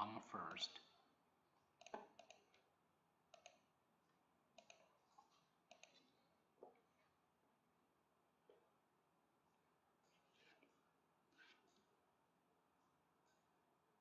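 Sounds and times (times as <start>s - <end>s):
computer mouse clicks: 1.8s - 2.7s, 3.3s - 3.7s, 4.5s - 6.1s.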